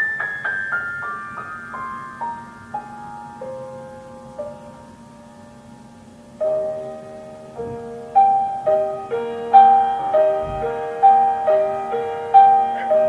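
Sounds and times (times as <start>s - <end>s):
slow classical piano: 0.0s - 13.0s.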